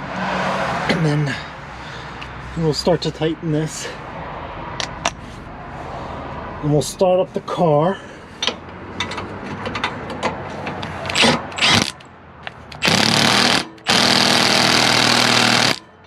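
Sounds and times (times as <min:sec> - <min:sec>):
tool and hardware clatter: 0:08.4 - 0:15.8.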